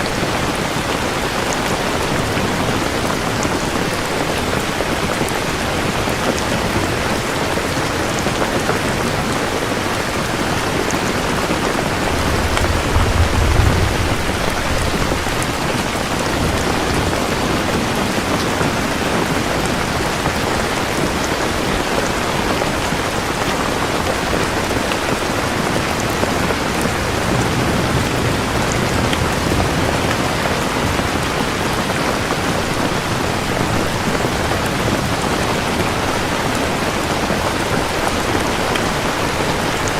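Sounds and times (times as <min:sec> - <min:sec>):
heavy rain falling: 0:00.0 - 0:39.9
low thunder rumble: 0:10.2 - 0:18.0.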